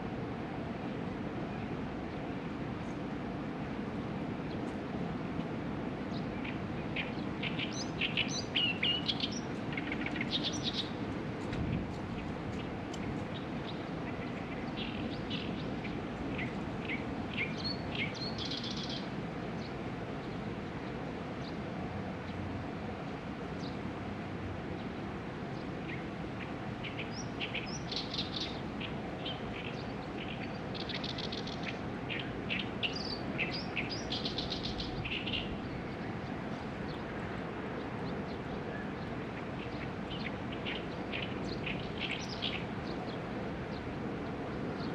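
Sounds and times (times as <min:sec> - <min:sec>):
small birds chirping and singing: 0:06.1 - 0:11.0, 0:12.2 - 0:19.7, 0:25.6 - 0:37.0, 0:38.4 - 0:43.9.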